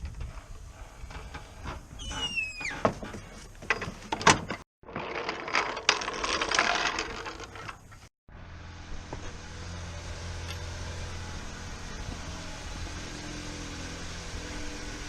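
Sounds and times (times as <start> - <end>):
brief falling squeal: 2.0 - 2.8.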